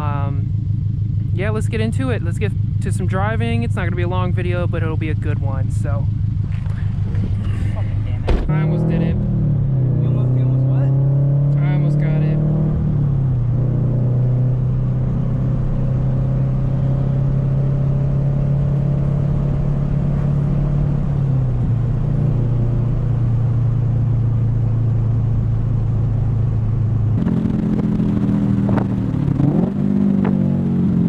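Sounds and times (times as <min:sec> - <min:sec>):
car engine droning: 0:00.0 - 0:31.0.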